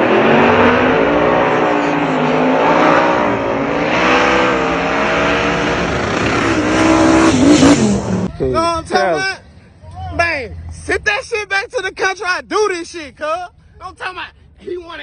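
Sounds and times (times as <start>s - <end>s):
race car engine at full throttle: 0.0s - 8.4s.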